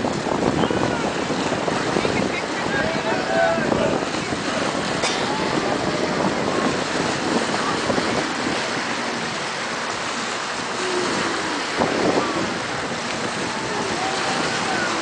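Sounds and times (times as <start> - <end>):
open water washing: 0.0 - 15.0
wind buffeting microphone: 0.0 - 15.0
distant voices calling out: 2.6 - 15.0.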